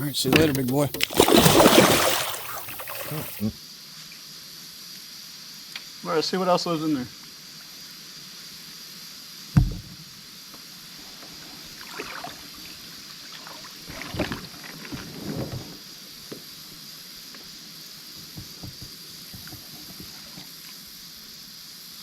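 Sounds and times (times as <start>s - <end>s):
steady background hiss: 0.0s - 22.0s
fishing gear knocking on kayak: 9.6s - 10.0s, 18.3s - 20.2s
sharp loud thump: 9.6s - 10.0s.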